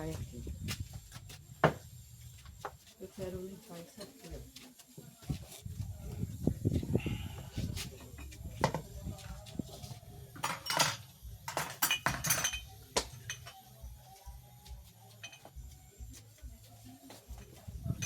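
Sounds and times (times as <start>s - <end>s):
hard objects clinking: 10.4s - 13.6s, 15.2s - 15.6s.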